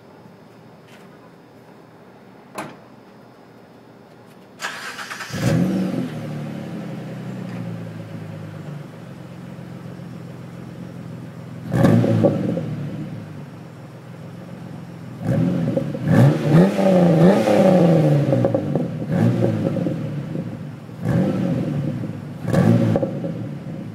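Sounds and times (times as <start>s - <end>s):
engine revving: 4.6s - 7.6s, 11.6s - 13.1s, 15.2s - 23.8s
car engine idling: 4.6s - 23.9s.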